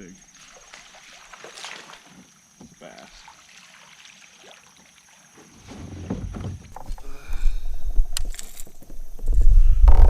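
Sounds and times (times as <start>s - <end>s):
knocks against kayak hull: 2.1s - 2.8s, 5.4s - 7.0s.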